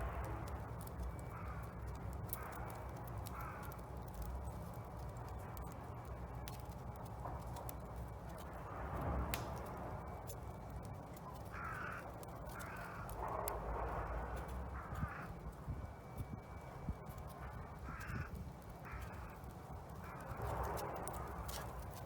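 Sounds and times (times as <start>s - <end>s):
steady low rumble: 0.0s - 22.0s
wood fire crackling: 0.0s - 22.0s
crows cawing: 0.2s - 5.8s, 11.3s - 16.7s, 17.3s - 22.0s.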